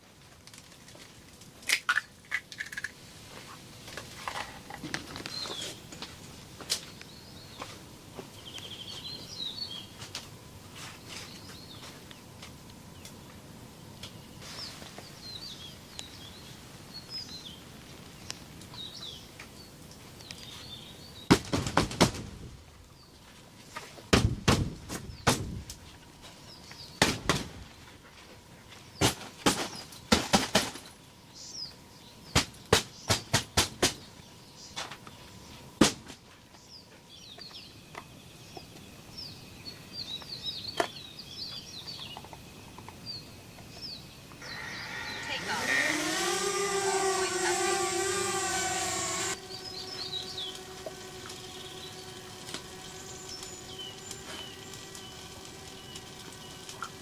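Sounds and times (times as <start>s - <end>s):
outdoor background noise: 0.0s - 57.0s
small birds chirping: 4.9s - 10.1s, 10.8s - 21.4s, 26.2s - 30.0s, 36.4s - 57.0s
loud sharp knocks: 24.1s - 25.5s.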